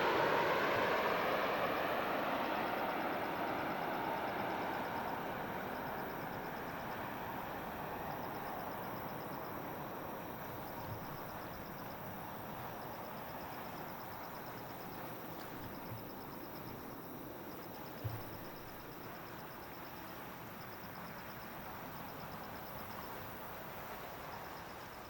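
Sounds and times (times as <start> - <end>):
distant jet rumble: 0.0 - 19.4.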